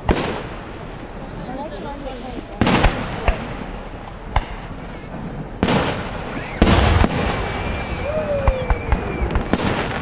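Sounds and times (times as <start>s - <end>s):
fireworks booming: 0.0s - 10.0s
fireworks crackling pops: 0.0s - 10.0s
firework whistle: 6.2s - 10.0s.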